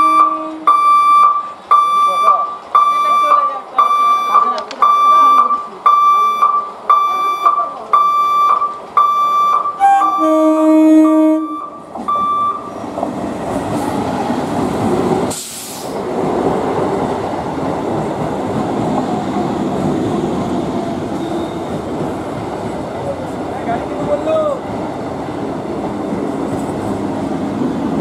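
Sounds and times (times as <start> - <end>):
train horn blast: 0.0 - 0.7, 9.8 - 11.7
short electronic beeps: 0.0 - 10.3, 11.4 - 12.7
train wheels rushing on rails: 11.7 - 28.0.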